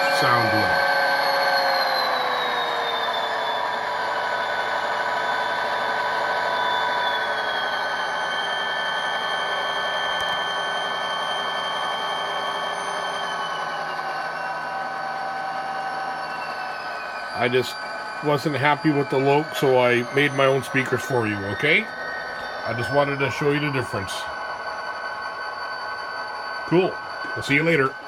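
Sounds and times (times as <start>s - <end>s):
diesel locomotive engine drone: 0.0s - 28.0s.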